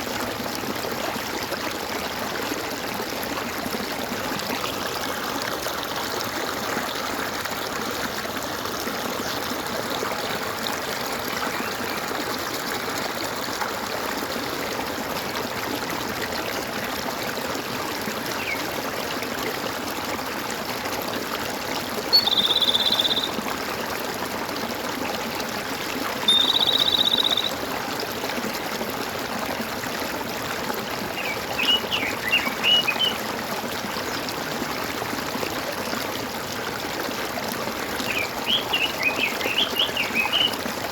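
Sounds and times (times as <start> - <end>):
stream water gurgling: 0.0 - 40.9
high buzzy trilled calls: 22.1 - 23.3, 26.3 - 27.6
bird chirps: 22.1 - 23.4, 26.3 - 27.6, 31.2 - 33.2, 38.1 - 40.5.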